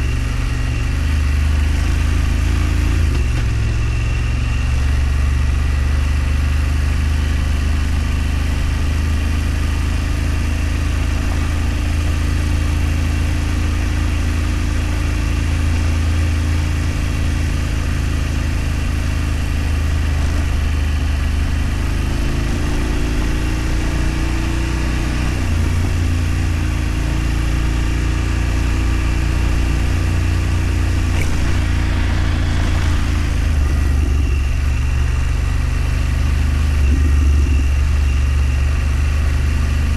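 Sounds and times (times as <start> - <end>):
vehicle engine running: 0.0 - 39.9
wind and road noise: 7.7 - 39.1.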